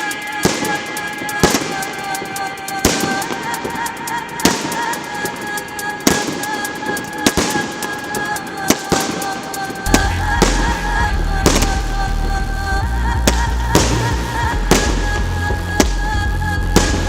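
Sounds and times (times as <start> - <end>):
fireworks banging and crackling: 0.0 - 10.8, 11.4 - 12.4, 13.2 - 15.2, 16.8 - 17.0
music with wavering tones: 8.7 - 17.0
heavy bass: 9.8 - 17.0.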